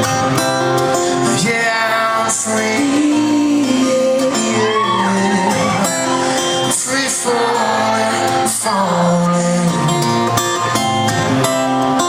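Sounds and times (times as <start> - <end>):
acoustic guitar: 0.0 - 12.0
person singing wordless melody: 1.3 - 10.0.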